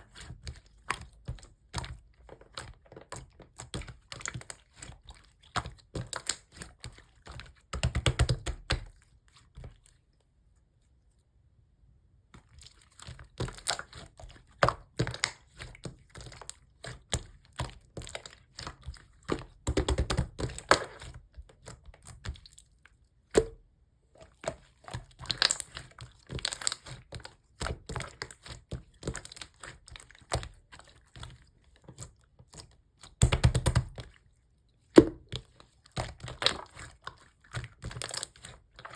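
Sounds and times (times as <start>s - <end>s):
slime squishing and popping: 24.9s - 30.6s, 33.0s - 34.1s.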